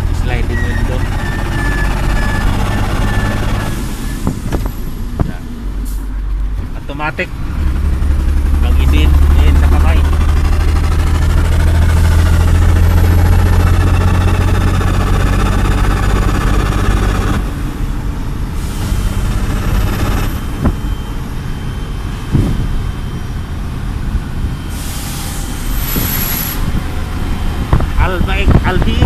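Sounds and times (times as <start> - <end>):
diesel truck engine running: 0.0 - 29.0
air brake hisses: 24.7 - 26.7.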